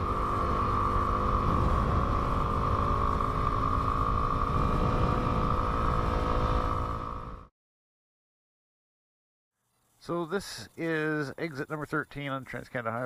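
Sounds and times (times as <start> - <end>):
wind rush: 0.0 - 7.3
motorcycle engine running: 0.0 - 7.5.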